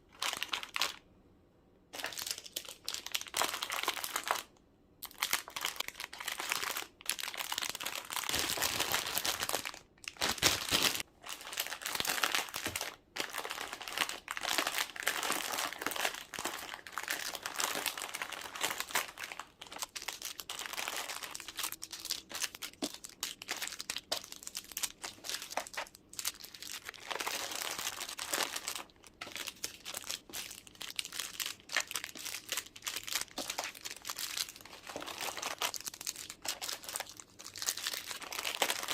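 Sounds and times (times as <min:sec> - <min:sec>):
plastic packaging crinkling: 0:00.1 - 0:01.0, 0:02.0 - 0:38.9.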